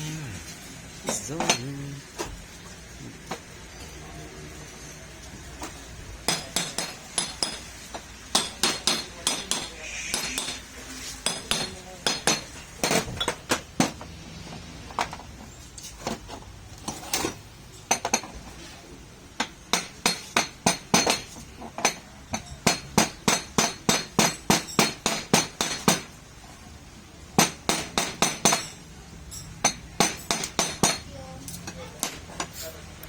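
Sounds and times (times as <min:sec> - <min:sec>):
hammer blows on metal: 0:08.3 - 0:12.5.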